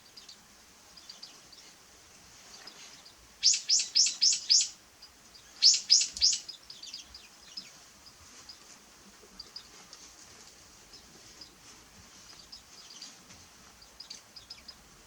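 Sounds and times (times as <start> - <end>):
bird calling sharp notes: 3.4 - 4.8, 5.6 - 6.5.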